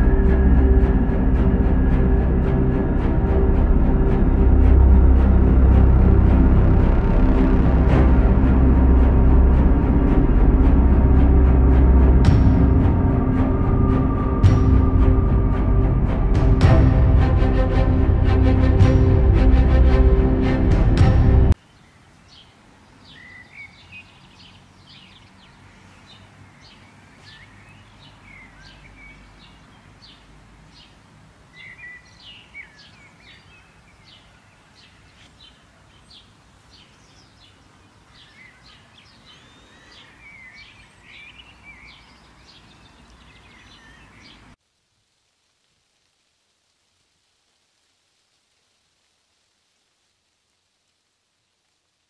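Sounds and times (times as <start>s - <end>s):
faint outdoor background: 0.0s - 52.0s
birds chirping: 21.5s - 44.6s.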